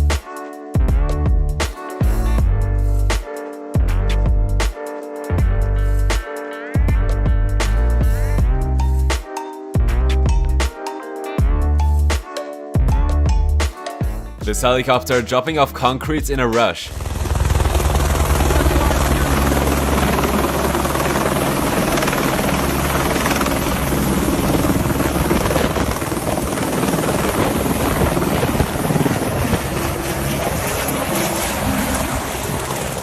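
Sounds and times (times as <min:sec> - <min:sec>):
helicopter rotor beat: 0:16.2 - 0:33.0.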